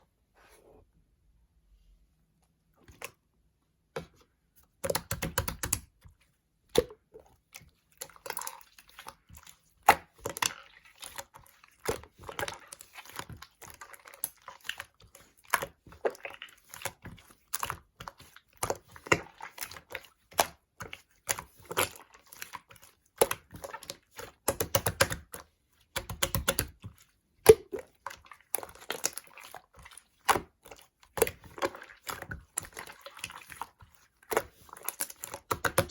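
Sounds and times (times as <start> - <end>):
slime squelching and popping: 4.8 - 6.0, 6.7 - 35.9.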